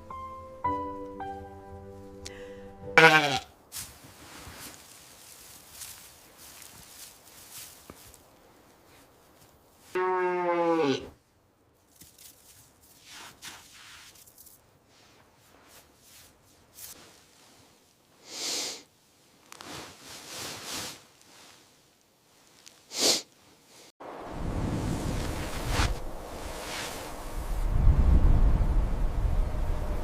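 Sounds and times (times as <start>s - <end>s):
faint rustles: 3.7s - 10.0s, 11.8s - 18.2s, 19.0s - 23.9s, 24.6s - 27.8s.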